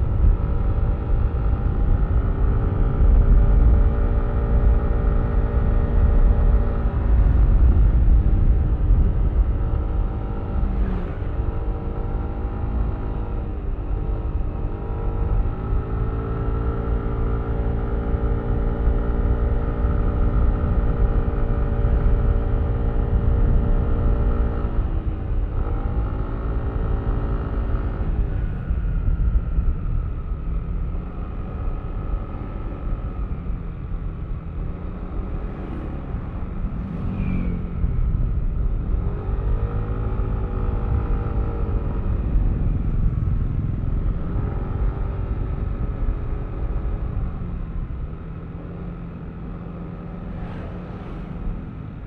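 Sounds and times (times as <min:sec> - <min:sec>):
wind rumble on microphone: 0:00.0 - 0:52.0.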